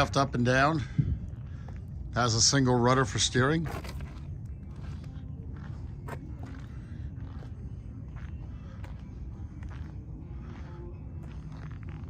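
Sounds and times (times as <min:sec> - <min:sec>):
steady low rumble: 0:00.0 - 0:12.0
footsteps: 0:03.5 - 0:12.0.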